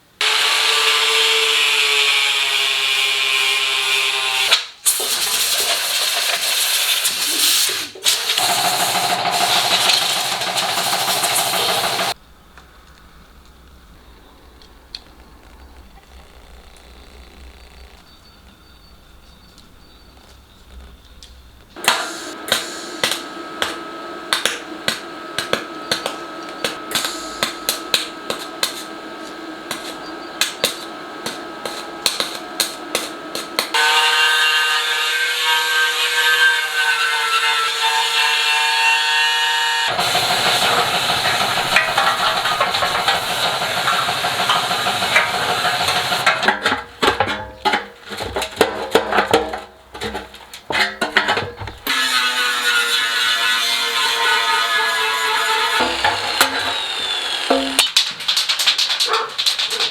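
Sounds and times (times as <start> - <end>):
steady whining tone: 21.3 - 33.8, 39.9 - 47.0, 55.8 - 57.9
hammer striking metal: 55.8 - 58.0.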